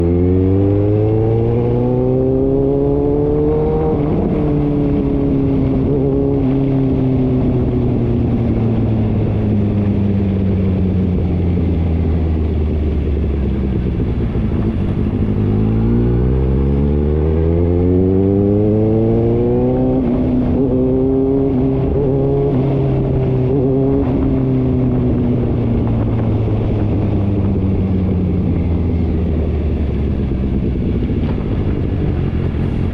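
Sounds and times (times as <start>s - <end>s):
vehicle engine running: 7.4s - 19.0s.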